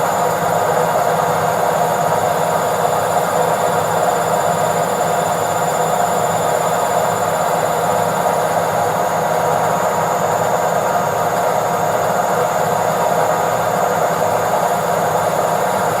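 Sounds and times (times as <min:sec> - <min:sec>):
washing machine spinning: 0:00.0 - 0:16.0.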